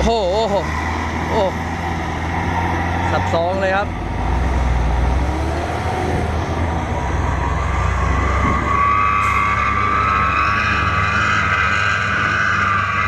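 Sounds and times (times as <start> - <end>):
diesel engine low rumble: 0.0 - 13.0.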